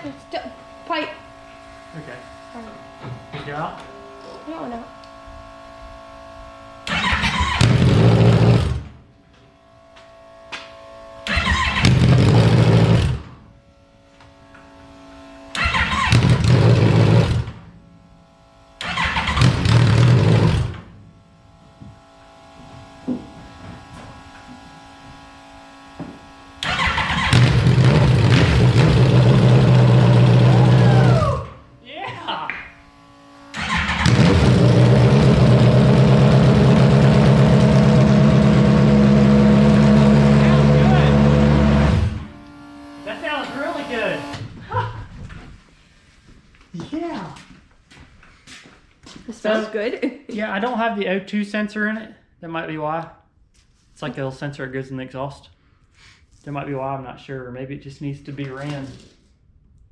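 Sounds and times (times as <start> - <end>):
motorcycle engine starting and dying: 6.8 - 9.1, 11.2 - 13.6, 15.5 - 17.8, 18.7 - 21.2, 22.8 - 31.7, 32.6 - 45.6.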